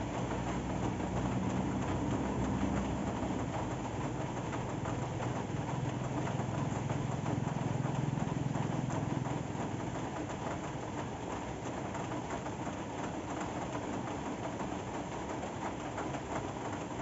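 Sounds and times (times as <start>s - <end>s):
engine humming: 0.0s - 10.3s
steady rain falling: 0.0s - 17.0s.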